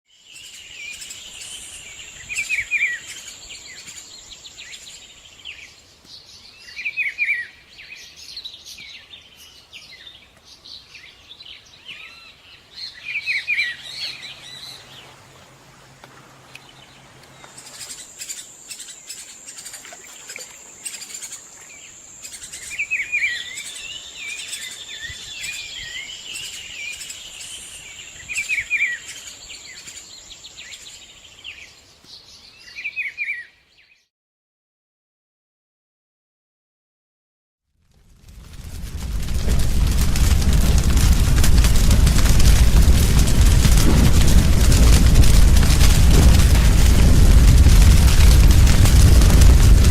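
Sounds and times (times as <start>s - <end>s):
many birds calling and chirping: 0.3s - 15.3s, 16.5s - 33.6s.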